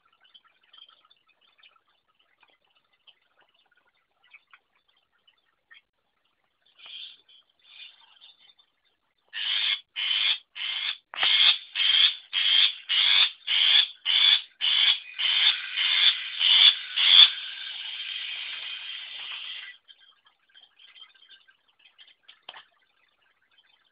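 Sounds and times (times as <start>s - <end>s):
bird calling harsh notes: 9.4s - 19.8s
bird chattering: 9.4s - 19.8s.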